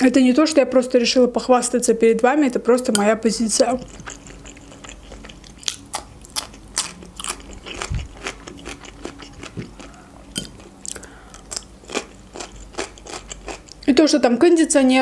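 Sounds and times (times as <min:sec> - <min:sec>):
cucumber crunching: 0:03.8 - 0:13.9.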